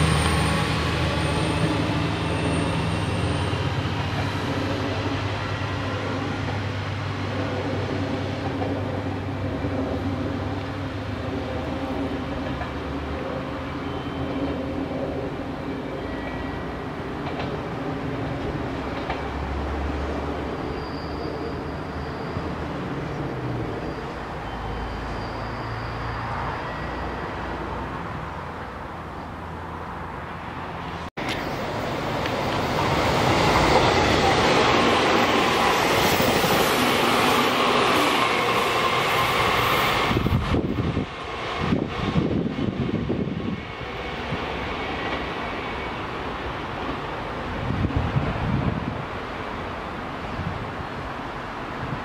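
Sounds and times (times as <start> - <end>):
diesel railcar engine running: 0.0 - 26.5
express train passing at speed: 0.0 - 52.0.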